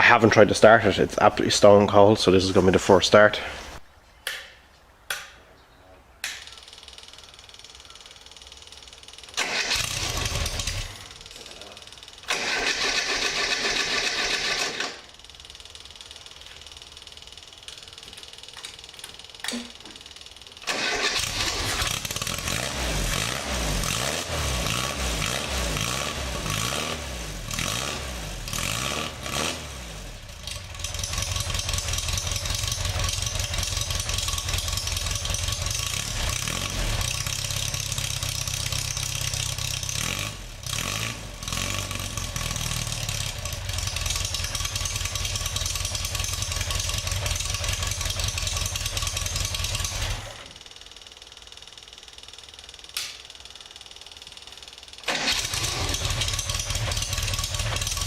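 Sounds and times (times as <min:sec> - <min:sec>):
car engine revving and idling: 0:09.6 - 0:11.7, 0:21.1 - 0:50.4, 0:55.1 - 0:58.0.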